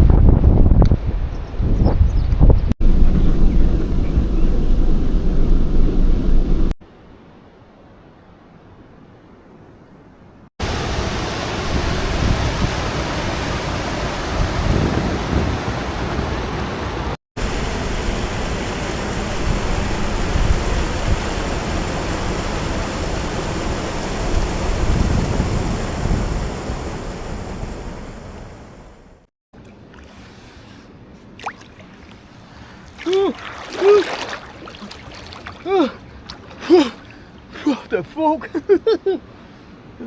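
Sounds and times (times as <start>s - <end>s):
waterfall rushing: 10.6s - 17.2s, 32.7s - 37.6s.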